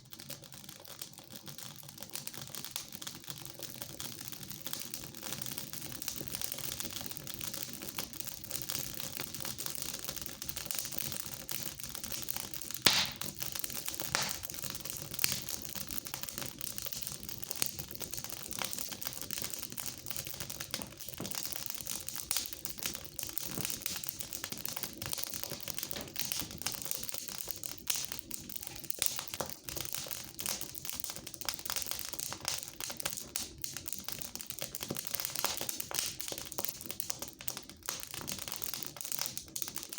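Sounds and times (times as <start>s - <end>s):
fire crackling: 9.6s - 39.7s
loud pop from fire: 12.9s - 13.4s, 14.1s - 14.6s, 35.4s - 36.1s.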